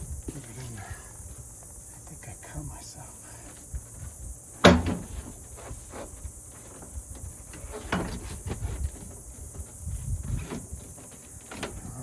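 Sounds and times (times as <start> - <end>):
small clicks and clunks: 10.4 - 11.9.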